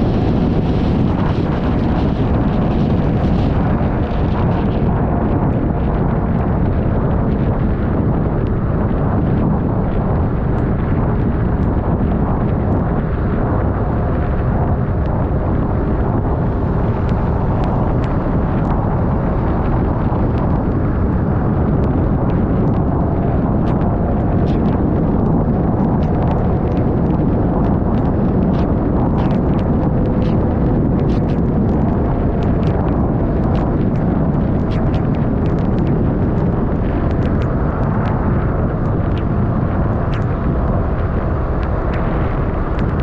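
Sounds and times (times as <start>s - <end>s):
wind buffeting microphone: 0.0s - 43.0s
small ticks: 34.6s - 39.3s, 40.1s - 40.3s, 42.7s - 43.0s.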